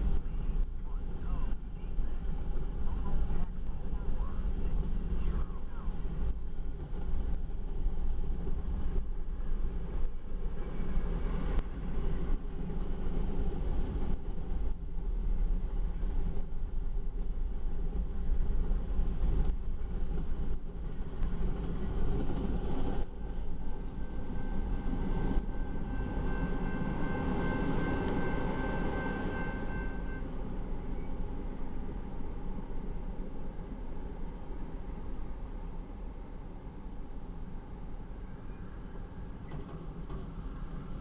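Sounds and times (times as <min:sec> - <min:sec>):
freight train rumbling past: 0:00.0 - 0:41.0
faint high steady tone: 0:23.5 - 0:41.0.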